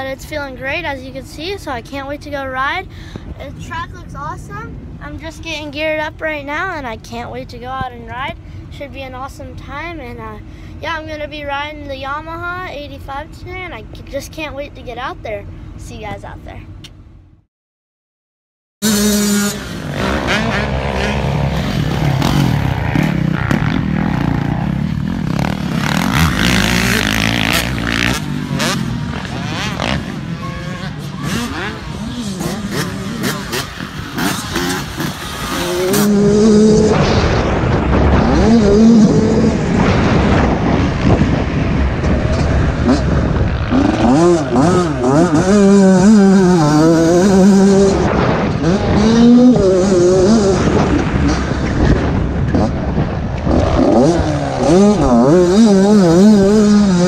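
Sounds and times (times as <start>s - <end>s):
dirt bike engine revving: 18.8s - 57.0s.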